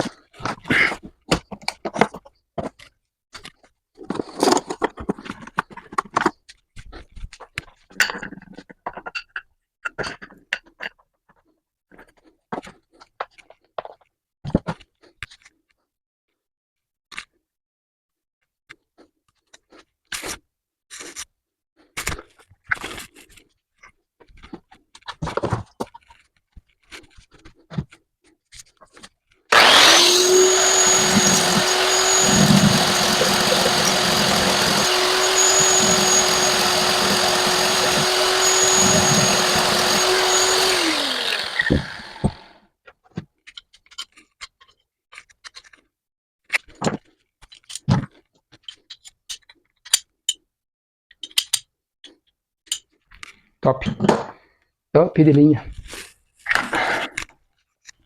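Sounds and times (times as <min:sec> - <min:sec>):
electric power tool running: 0:29.5 - 0:42.6.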